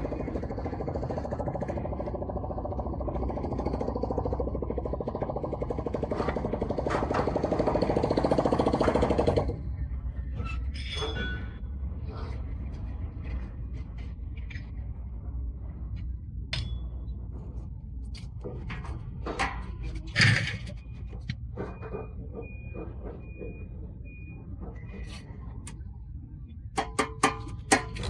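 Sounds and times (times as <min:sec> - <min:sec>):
metal clatter: 0:18.2 - 0:22.6, 0:26.8 - 0:28.0.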